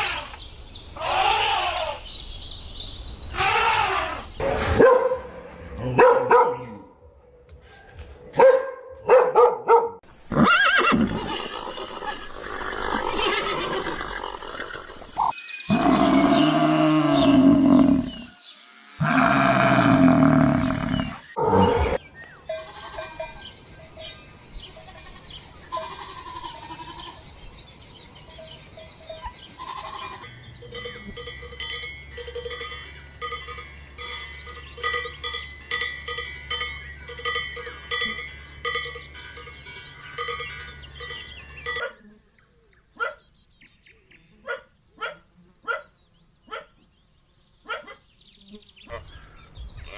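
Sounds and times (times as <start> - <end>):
livestock calling: 1.0 - 2.2, 3.3 - 4.4, 10.1 - 18.4, 19.0 - 24.1, 24.7 - 27.4, 28.3 - 31.4, 48.9 - 49.9
bells clanking rapidly: 22.4 - 24.2, 28.4 - 41.8.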